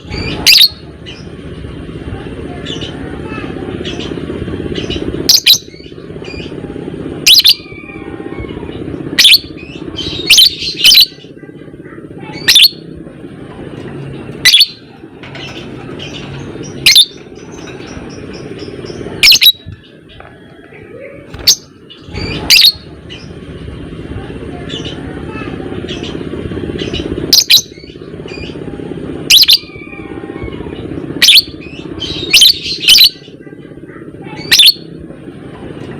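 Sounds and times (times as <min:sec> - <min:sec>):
lovebird shrill calls: 0:19.2 - 0:19.6.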